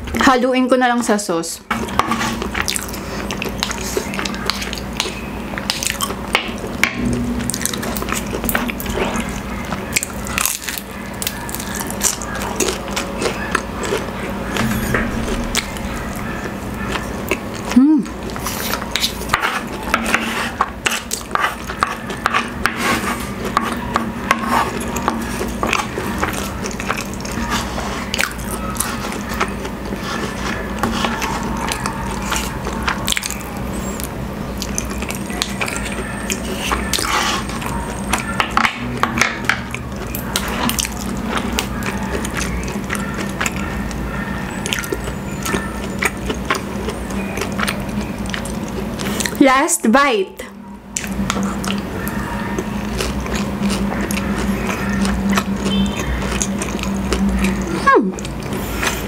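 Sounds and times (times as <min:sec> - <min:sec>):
wooden spoons scraping wooden plate: 0:01.7 - 0:02.7, 0:18.4 - 0:26.6, 0:29.9 - 0:32.6
chewing and wet mouth sounds: 0:01.7 - 0:49.6, 0:50.4 - 0:59.0.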